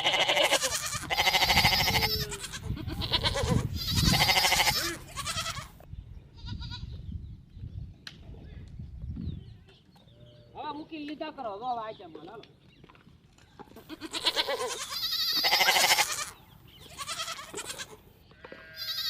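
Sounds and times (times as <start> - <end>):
sheep bleating: 0.0 - 5.8, 13.8 - 19.0.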